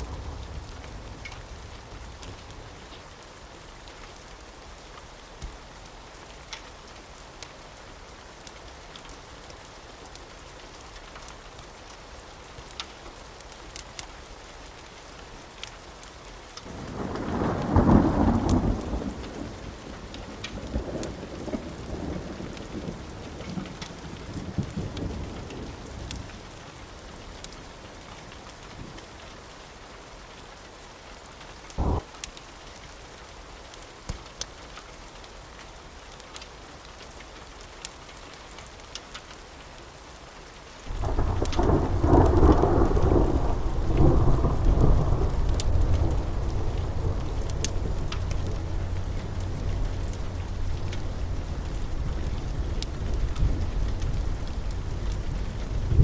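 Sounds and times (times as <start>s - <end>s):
steady rain: 0.0s - 56.0s
faint scattered clicks: 8.4s - 29.4s, 41.0s - 55.8s
thunder rumbling: 16.6s - 26.1s, 31.8s - 32.1s, 40.9s - 56.0s.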